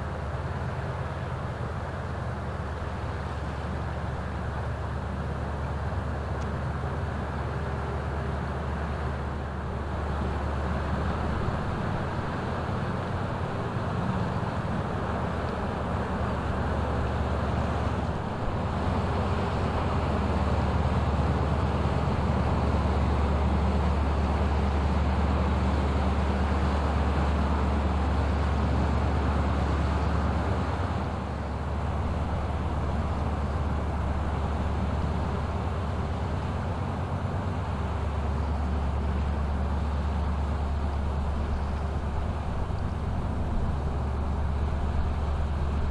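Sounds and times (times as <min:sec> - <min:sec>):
ship diesel engine droning: 0:00.0 - 0:45.9.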